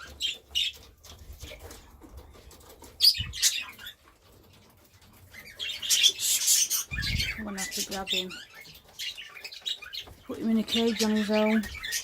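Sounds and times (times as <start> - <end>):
budgerigars chirping: 0.0 - 1.8, 2.6 - 12.0.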